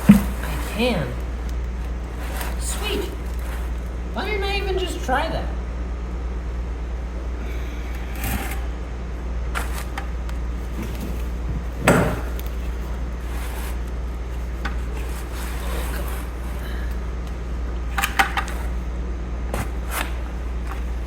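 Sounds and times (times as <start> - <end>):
objects knocking and clattering: 0.0 - 0.8, 10.7 - 12.8
steady low hum: 0.0 - 21.0.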